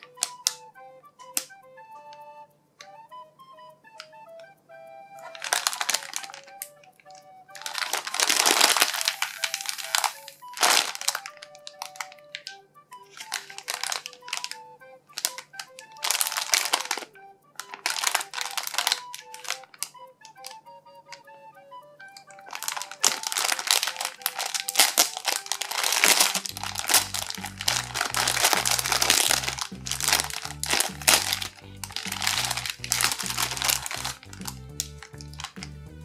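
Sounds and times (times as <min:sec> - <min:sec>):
foam toy crinkly rustling: 0:00.0 - 0:00.6, 0:05.2 - 0:21.2, 0:22.4 - 0:35.7
light background music: 0:00.0 - 0:36.0.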